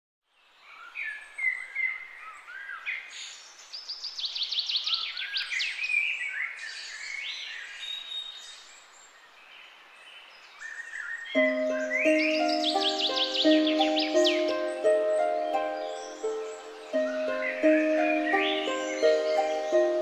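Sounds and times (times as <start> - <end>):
birds chirping and calling: 10.6 - 20.0.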